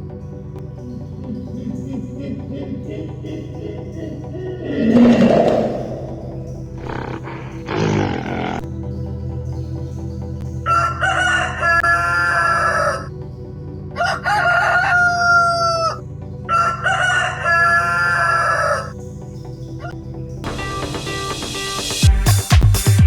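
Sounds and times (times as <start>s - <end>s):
rooster crowing: 10.7s - 13.1s, 14.0s - 18.9s.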